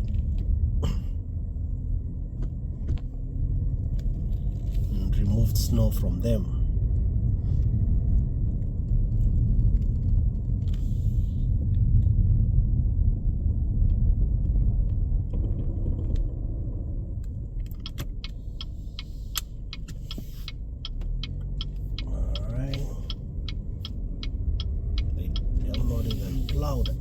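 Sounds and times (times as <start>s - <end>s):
car rumbling on snowy road: 0.0s - 27.0s
sharp irregular clicks: 17.6s - 27.0s.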